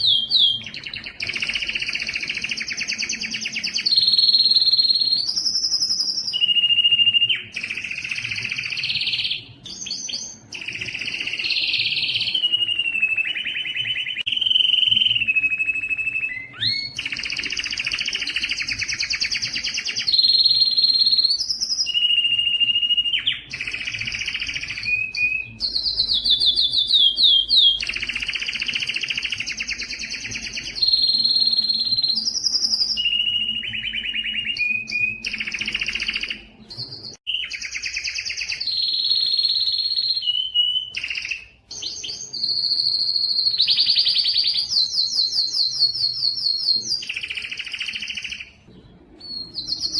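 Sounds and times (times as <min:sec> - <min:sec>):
canary singing trills: 0:00.0 - 0:49.9.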